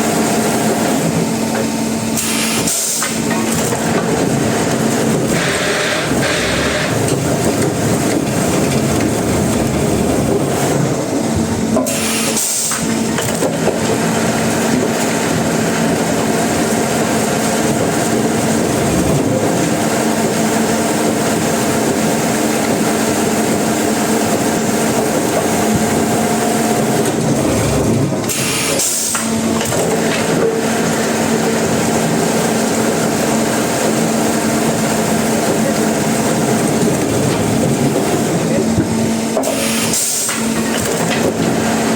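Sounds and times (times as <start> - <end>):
sawmill machinery drone: 0.0 - 41.9.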